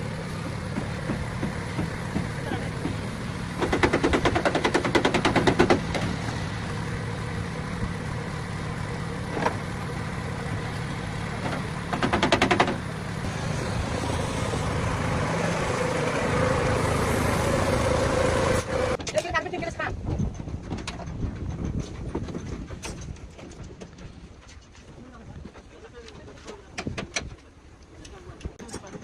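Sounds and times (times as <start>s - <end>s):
power tool rattling: 3.6s - 6.3s, 11.4s - 12.9s.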